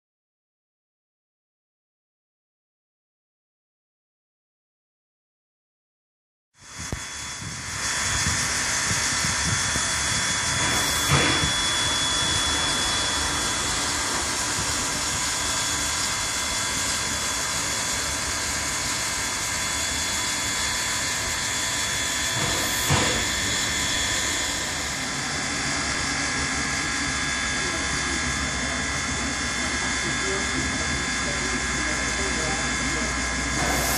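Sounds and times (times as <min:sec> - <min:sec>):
steam locomotive hissing: 0:06.9 - 0:28.3, 0:31.4 - 0:33.9.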